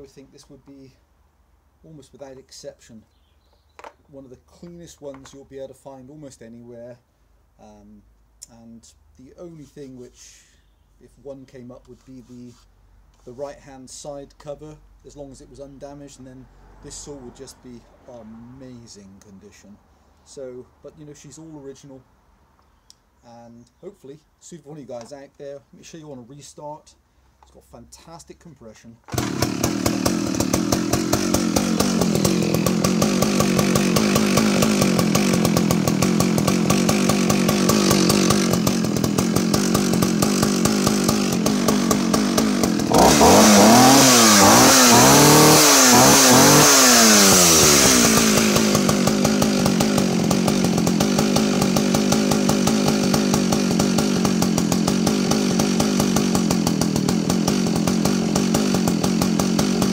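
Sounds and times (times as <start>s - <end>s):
two-stroke chainsaw idling and revving: 29.1s - 59.9s.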